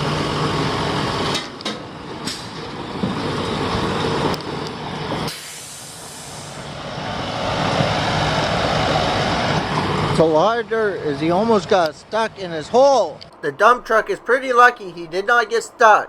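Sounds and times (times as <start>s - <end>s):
air hissing: 5.3s - 6.7s.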